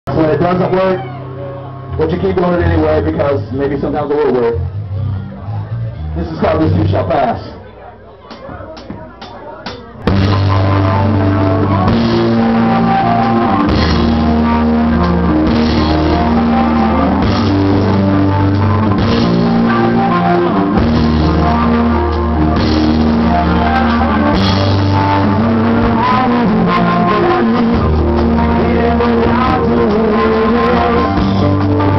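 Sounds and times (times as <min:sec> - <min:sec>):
bass guitar: 0:00.0 - 0:31.9
drum kit: 0:08.3 - 0:31.9
electric guitar: 0:10.0 - 0:31.9.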